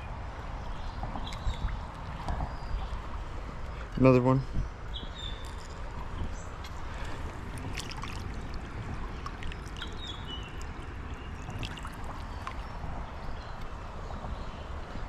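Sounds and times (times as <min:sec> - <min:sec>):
creek water rushing: 0:01.2 - 0:15.0
sharp little splashes: 0:05.4 - 0:12.9.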